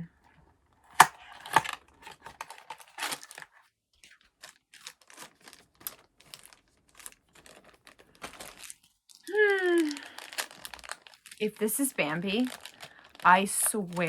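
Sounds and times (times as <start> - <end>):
packaging being torn and crinkled: 1.0 - 14.0.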